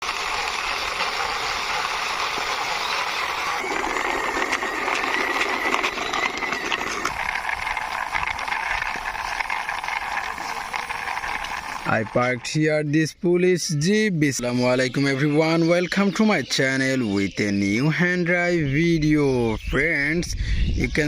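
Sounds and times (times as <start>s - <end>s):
toy plastic wheels rolling: 0.0s - 12.6s.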